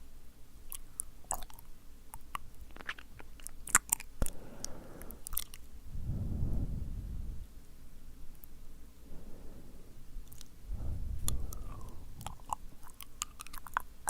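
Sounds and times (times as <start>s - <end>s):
tongue and lip clicks: 0.7s - 5.7s, 10.2s - 14.0s.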